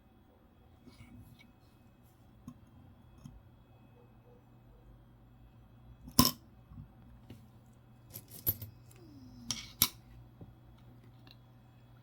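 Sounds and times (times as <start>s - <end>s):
metal coins clinking: 8.1s - 8.7s.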